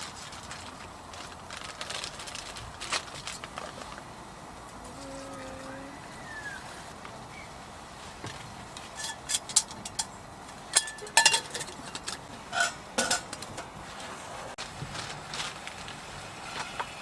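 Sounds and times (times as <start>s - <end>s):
metal cookware clinking: 9.0s - 13.6s.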